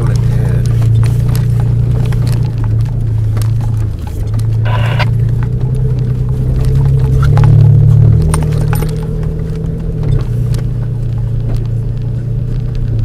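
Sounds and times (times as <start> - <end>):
vehicle engine droning: 0.0 - 13.0
high-pitched squeak: 4.7 - 5.1.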